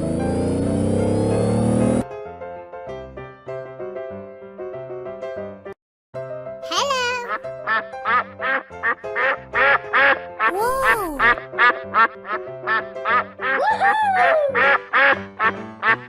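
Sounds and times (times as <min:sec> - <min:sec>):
cartoon duck quacking: 0:06.7 - 0:07.4, 0:10.4 - 0:11.4
bouncy background music: 0:06.7 - 0:16.0.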